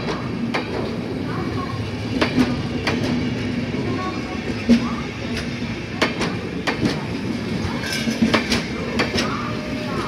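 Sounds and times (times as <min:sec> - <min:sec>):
train rumble and hum: 0:00.0 - 0:10.0
wheels clacking over rail joints: 0:04.6 - 0:09.5.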